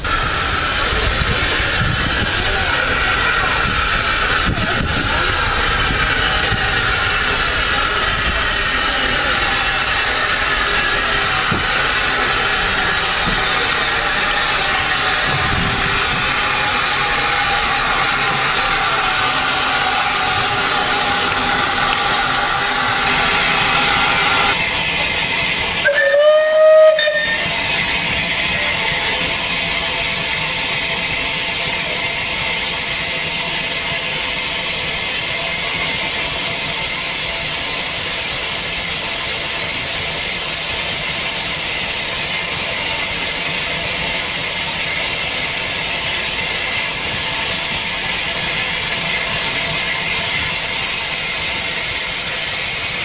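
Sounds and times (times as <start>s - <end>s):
steam locomotive whistle: 0.0s - 37.1s
steam hissing: 0.0s - 53.0s.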